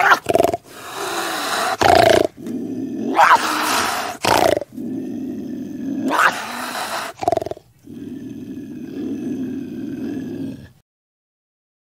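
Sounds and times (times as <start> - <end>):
cougar loud outbursts: 0.0 - 4.8, 5.9 - 10.7
cougar growling: 0.0 - 10.8.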